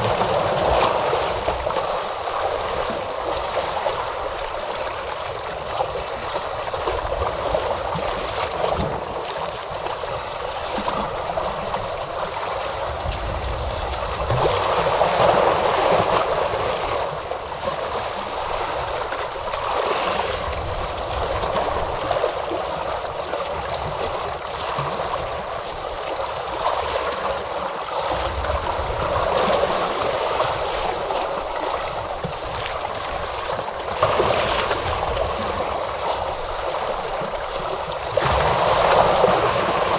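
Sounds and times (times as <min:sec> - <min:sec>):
ocean waves washing onto shore: 0:00.0 - 0:39.9
wave breaking: 0:00.0 - 0:39.9.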